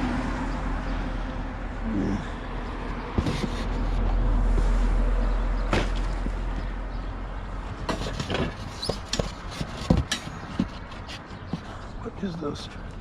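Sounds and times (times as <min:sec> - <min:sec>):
rummaging through junk: 0:02.8 - 0:04.1, 0:05.6 - 0:06.7, 0:07.7 - 0:11.9.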